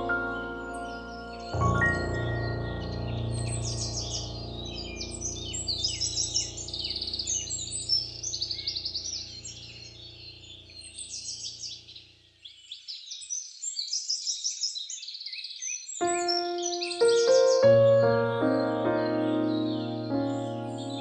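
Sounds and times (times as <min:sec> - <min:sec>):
soft background music: 0:00.0 - 0:08.4, 0:16.0 - 0:21.0
birds chirping and trilling: 0:00.0 - 0:21.0.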